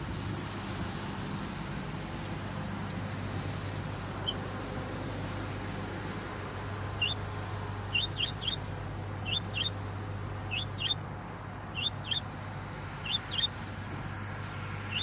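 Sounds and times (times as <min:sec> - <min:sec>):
small bird chirping: 0:07.0 - 0:07.2, 0:07.8 - 0:09.8, 0:10.4 - 0:11.0, 0:11.7 - 0:12.3, 0:13.0 - 0:13.6.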